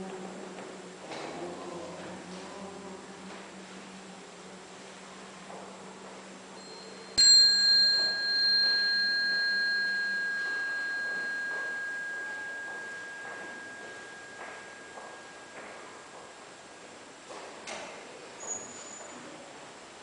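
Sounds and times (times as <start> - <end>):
small bell ringing: 6.6 - 16.3.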